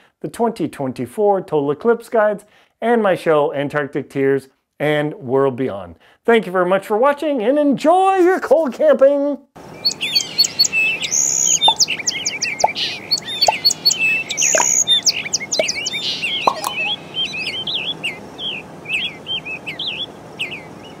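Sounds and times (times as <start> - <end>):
birds chirping and singing: 9.7 - 21.0.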